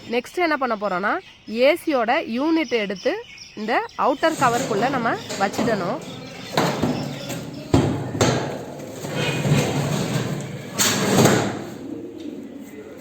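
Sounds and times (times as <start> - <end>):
air conditioner scraping into casing: 4.2 - 11.8
knocks and bangs on metal casing: 4.4 - 11.7.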